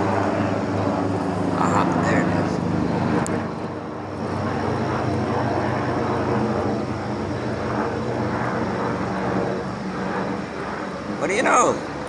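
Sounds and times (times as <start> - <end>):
helicopter rotor drone: 0.0 - 12.0.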